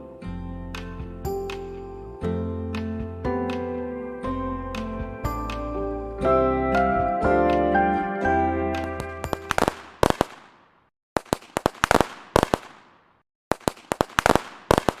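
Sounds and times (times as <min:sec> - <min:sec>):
soft music: 0:00.0 - 0:09.7
sharp pops and cracks: 0:08.8 - 0:15.0.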